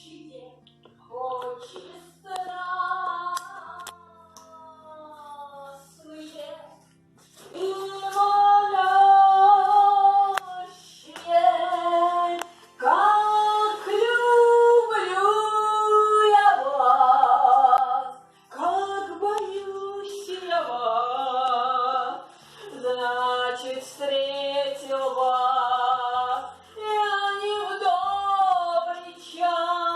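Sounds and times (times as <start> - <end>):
woman singing: 0.0 - 6.8, 7.4 - 29.9.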